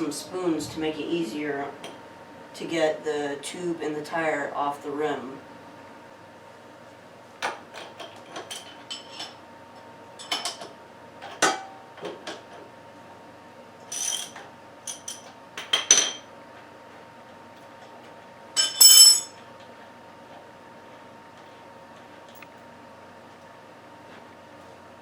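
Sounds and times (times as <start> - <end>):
metal hand tools clinking: 18.6 - 19.3.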